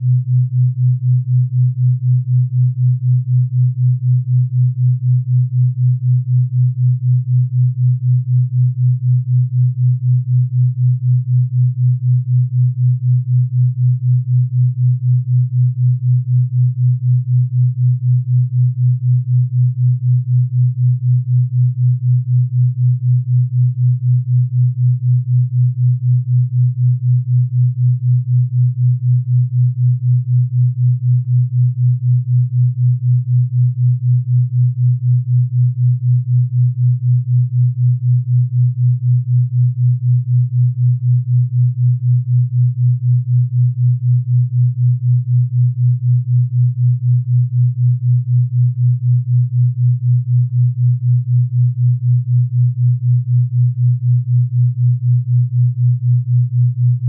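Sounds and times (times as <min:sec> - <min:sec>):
pulsing low electronic tone: 0:00.0 - 0:57.0.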